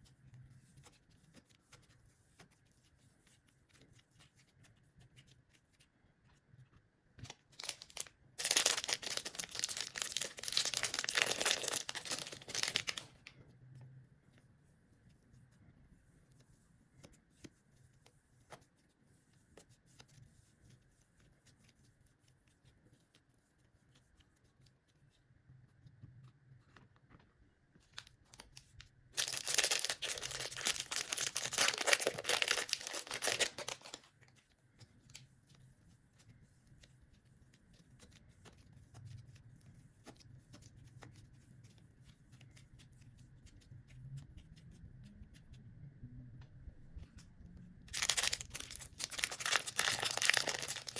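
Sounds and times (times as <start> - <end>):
hands handling craft material: 0.0 - 13.6, 26.0 - 44.3, 47.9 - 50.9
loud crackling tearing noise: 29.2 - 34.0, 47.9 - 50.9.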